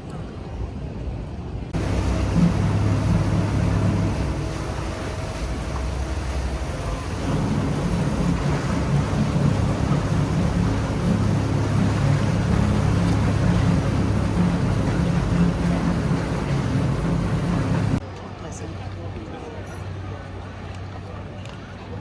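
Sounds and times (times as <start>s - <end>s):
train machine drone: 1.8s - 18.0s.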